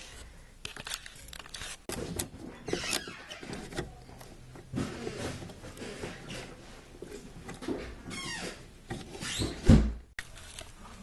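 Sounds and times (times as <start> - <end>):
hand tools clicking and scraping: 0.0 - 9.6.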